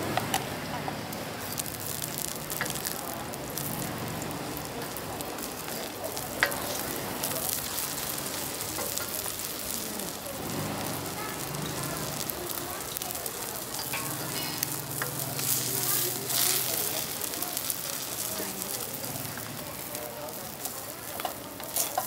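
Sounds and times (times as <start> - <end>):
egg sizzling in hot oil: 0.1 - 22.0
fork stirring egg in wok: 4.6 - 9.8, 20.6 - 22.0.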